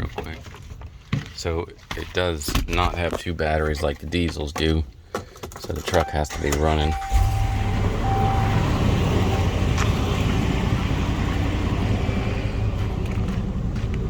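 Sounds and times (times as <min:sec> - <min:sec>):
short beep: 0:06.0 - 0:09.6
truck engine idling: 0:06.3 - 0:14.0.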